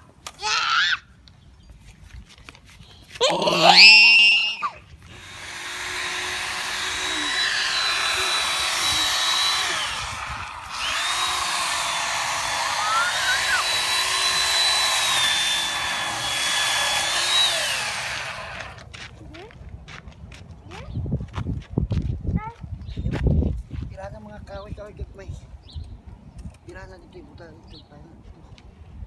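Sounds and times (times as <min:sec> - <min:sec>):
power tool cutting branches: 0:03.2 - 0:18.9.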